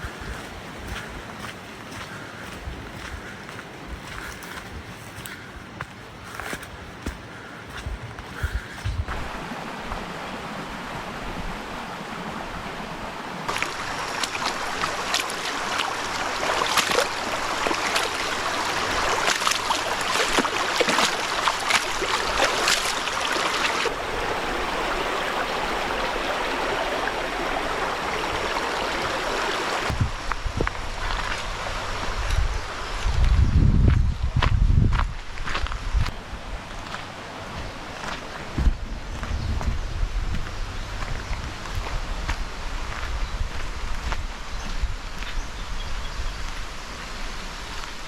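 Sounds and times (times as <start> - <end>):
stream water rushing: 0.0 - 33.4, 35.2 - 48.0
water splashing: 7.8 - 33.0.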